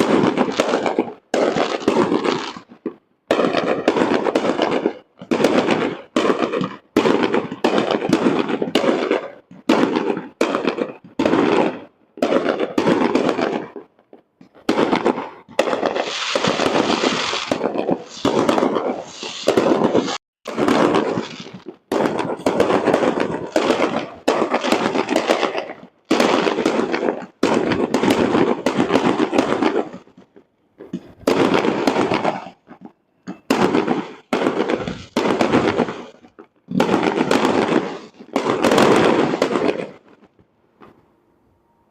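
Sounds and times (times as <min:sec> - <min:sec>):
fireworks shells bursting: 0:14.4 - 0:41.2.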